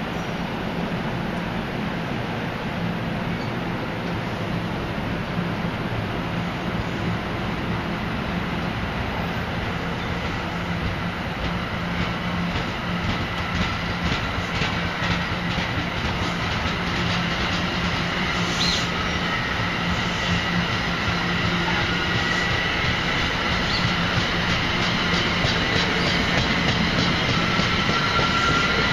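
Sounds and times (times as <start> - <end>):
high wheel squeal: 18.0 - 24.2, 24.8 - 28.9.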